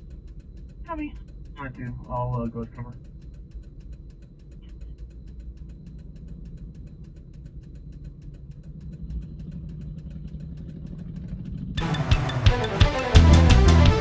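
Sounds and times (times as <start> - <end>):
faint rapid ticking: 0.0 - 14.0.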